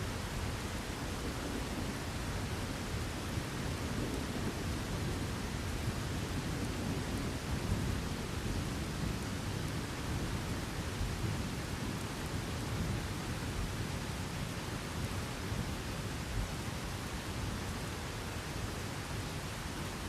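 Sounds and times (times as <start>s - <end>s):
heavy rain: 0.0s - 20.0s
rolling rumble of thunder: 1.4s - 17.2s.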